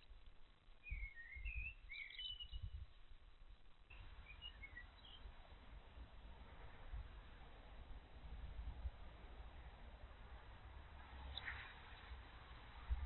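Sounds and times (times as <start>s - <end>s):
small birds chirping: 0.0s - 5.9s.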